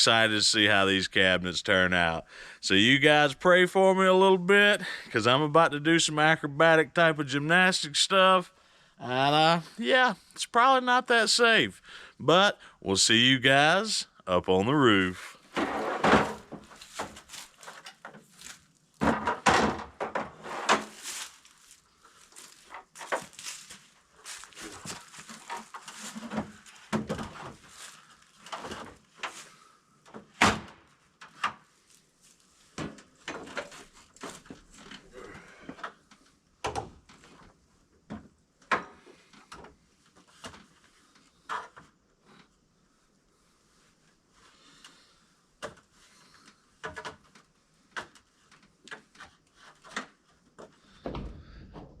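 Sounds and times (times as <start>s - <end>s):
ladder knocks and clanks: 15.6s - 17.9s, 19.0s - 21.0s.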